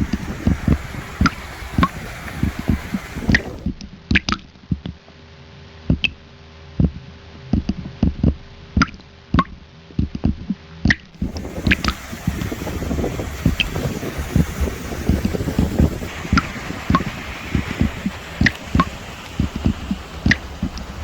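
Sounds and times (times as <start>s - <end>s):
rushing water: 0.0s - 3.7s, 11.2s - 21.0s
wet squelches and drips: 11.2s - 21.0s.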